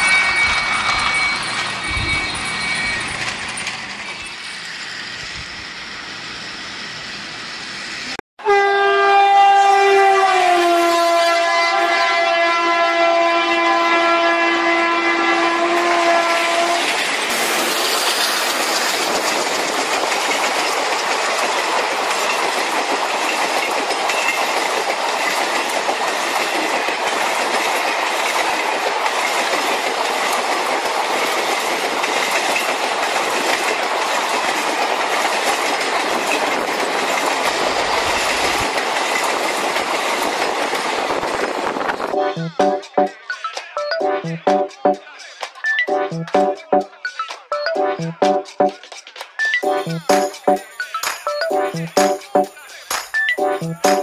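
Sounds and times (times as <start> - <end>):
toy train running on track: 0.0 - 7.1, 16.1 - 43.8, 44.7 - 45.9, 46.8 - 47.6, 48.8 - 54.0
two-tone train horn: 8.4 - 16.9.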